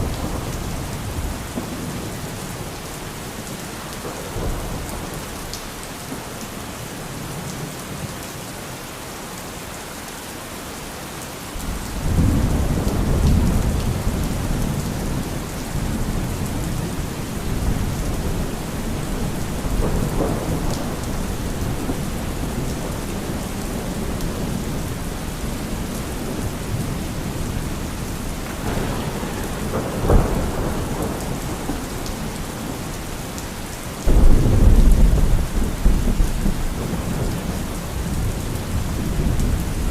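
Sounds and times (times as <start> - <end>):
thunder rumbling: 0.0 - 2.8, 11.6 - 39.9
rain falling: 0.0 - 39.9
sharp thunderclap: 11.6 - 27.5, 28.4 - 32.9, 34.1 - 39.9.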